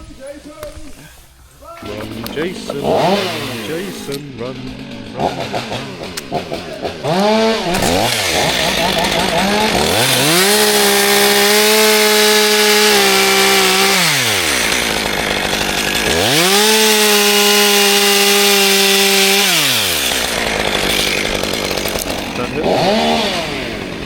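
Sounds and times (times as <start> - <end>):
chainsaw sawing wood: 0.0 - 24.0.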